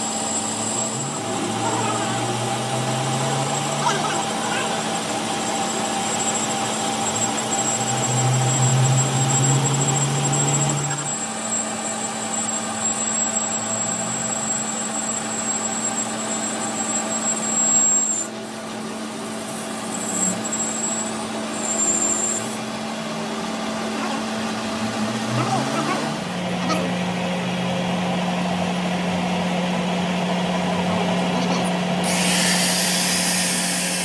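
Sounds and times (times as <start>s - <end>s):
deeper engine tone: 0.0s - 32.2s
engine humming: 21.0s - 32.0s.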